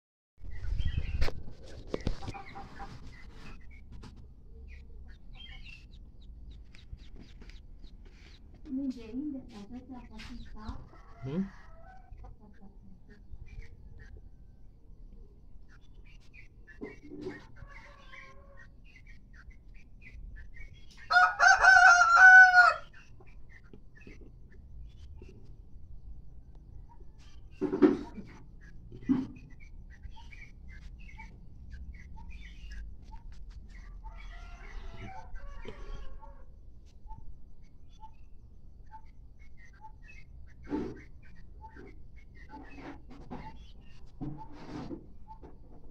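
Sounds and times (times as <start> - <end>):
chickens clucking: 0.6 - 45.9
rooster crowing: 11.0 - 12.0, 21.1 - 22.9, 34.0 - 36.5.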